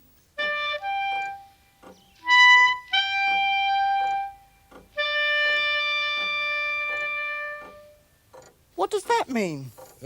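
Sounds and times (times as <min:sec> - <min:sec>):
instrument playing held notes: 0:00.4 - 0:08.1.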